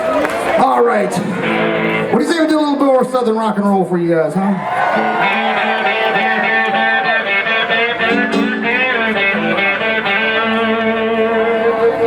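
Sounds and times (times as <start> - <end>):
bass line: 5.0 - 10.8
electric guitar with bent notes: 5.0 - 11.8.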